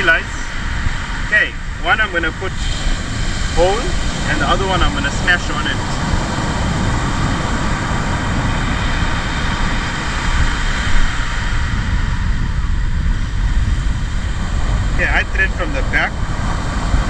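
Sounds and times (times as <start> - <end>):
surf rushing on beach: 0.0 - 17.0
wind buffeting microphone: 0.0 - 17.0.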